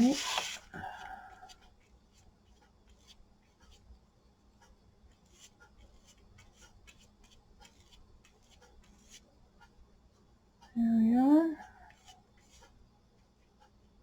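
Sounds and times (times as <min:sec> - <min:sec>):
brush tapping and swishing: 0:00.0 - 0:00.8, 0:04.6 - 0:10.2.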